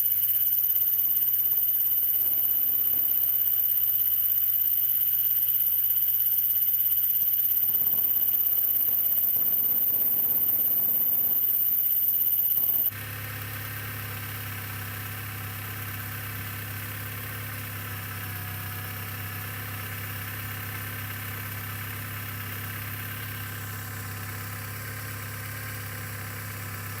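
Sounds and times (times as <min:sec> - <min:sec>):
faint high whine: 0:00.0 - 0:12.9
machine hum: 0:06.4 - 0:13.0.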